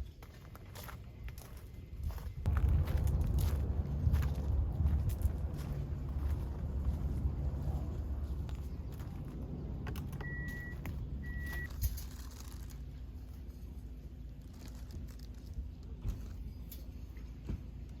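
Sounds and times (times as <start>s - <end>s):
low steady rumble: 0.0s - 18.0s
short high electronic beeps: 10.2s - 11.7s.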